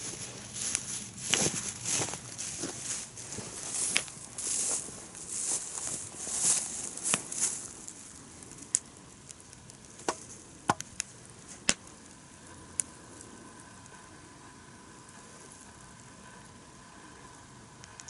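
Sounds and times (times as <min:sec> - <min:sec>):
rustling and scraping: 0:00.0 - 0:07.9
campfire crackling: 0:00.0 - 0:18.0.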